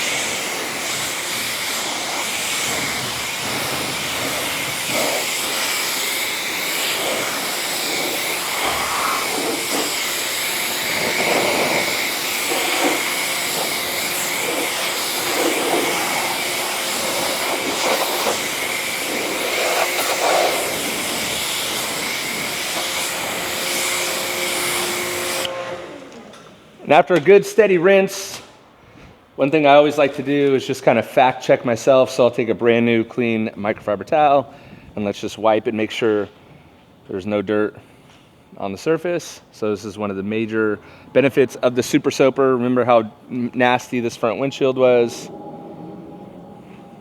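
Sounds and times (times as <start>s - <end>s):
water jet spraying on a car: 0.0s - 25.5s.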